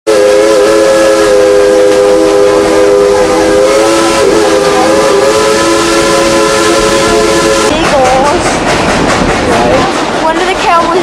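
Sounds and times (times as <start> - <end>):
steam locomotive chime whistle: 0.1 - 8.3.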